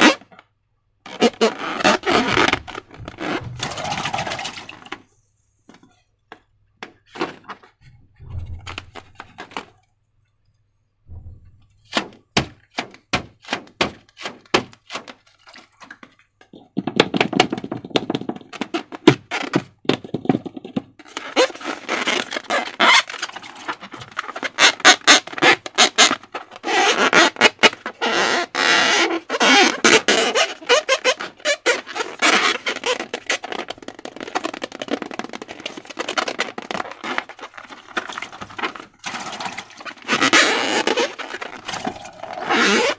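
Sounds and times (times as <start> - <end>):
sticky slime squelching: 31.9 - 42.9.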